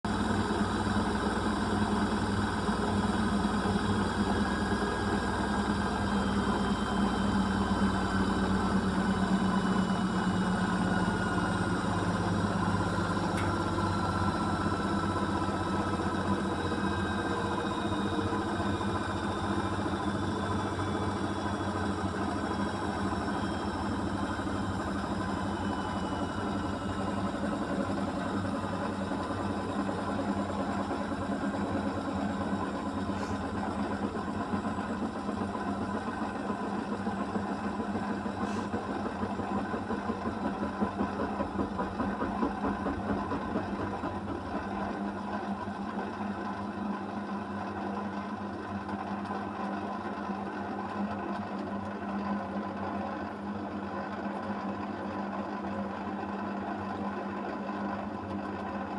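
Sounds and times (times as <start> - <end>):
washing machine motor whine winding down: 0.0 - 58.9.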